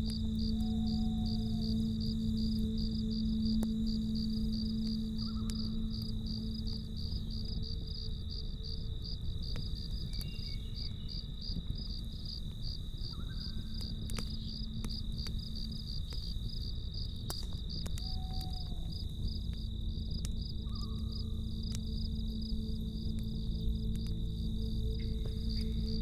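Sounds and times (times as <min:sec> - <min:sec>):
campfire crackling: 0:00.0 - 0:26.0
crickets chirping: 0:00.0 - 0:26.0
burning wood popping: 0:13.2 - 0:26.0.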